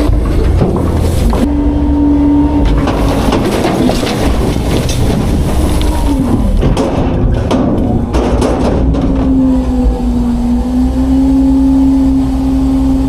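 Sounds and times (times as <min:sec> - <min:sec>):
garbage truck hydraulic whine: 0:00.0 - 0:13.0
truck engine rumble: 0:00.0 - 0:13.0
knocks and crunches: 0:02.6 - 0:09.7.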